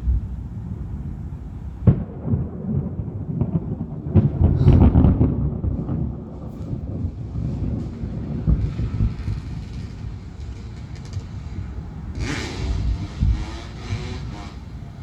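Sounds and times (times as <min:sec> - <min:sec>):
steady low rumble: 0:00.0 - 0:13.8
crackling thunder rumble: 0:00.0 - 0:15.0
thunder crack: 0:00.0 - 0:15.0.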